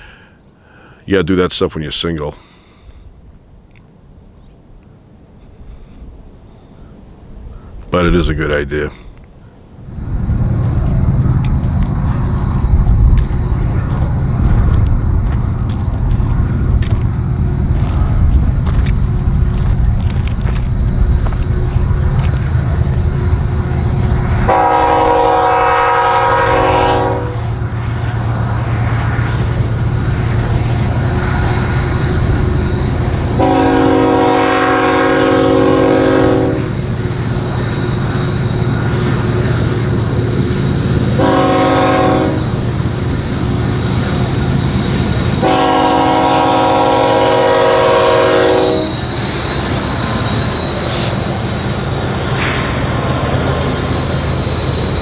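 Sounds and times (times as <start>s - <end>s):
train rumbling on tracks: 0.0s - 1.1s, 2.8s - 55.0s
locomotive horn: 24.3s - 27.6s, 33.1s - 36.8s, 41.1s - 42.8s, 44.8s - 51.4s.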